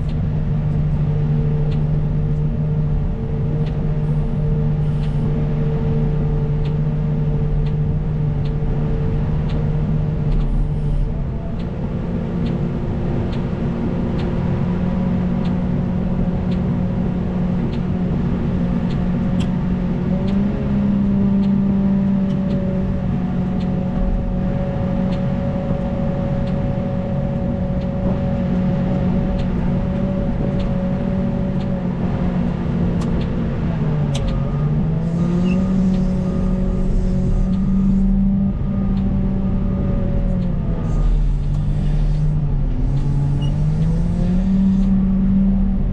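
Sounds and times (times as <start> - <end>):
wheel loader diesel engine: 0.0 - 45.9
light regular ticks: 1.6 - 2.5, 3.6 - 5.3, 7.4 - 11.8, 14.1 - 14.7, 15.3 - 16.8, 17.6 - 19.6, 20.2 - 22.8, 23.4 - 34.5, 35.1 - 39.2.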